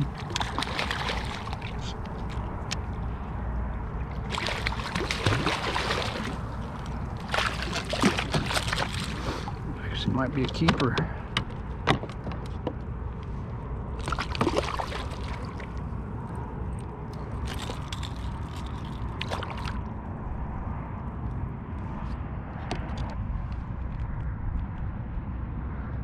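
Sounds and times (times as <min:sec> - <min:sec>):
water sloshing and splashing: 0:00.0 - 0:12.8, 0:13.9 - 0:20.0.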